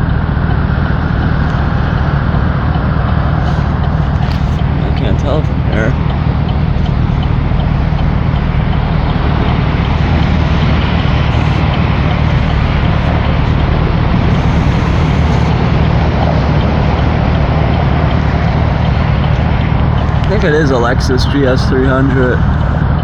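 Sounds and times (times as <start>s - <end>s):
traffic rumble: 0.0s - 23.0s
steady hiss: 6.7s - 21.8s.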